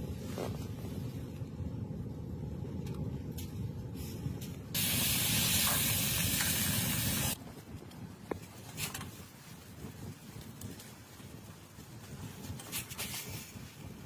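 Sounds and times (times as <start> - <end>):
low rumble: 0.0 - 7.8
loud steady hiss: 4.8 - 7.4.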